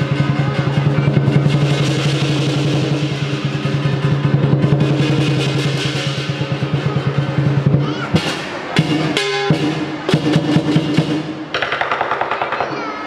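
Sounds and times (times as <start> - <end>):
cymbals: 0.0 - 12.3
heavy accented drum hits: 0.0 - 12.9
drums playing fast: 0.0 - 13.0.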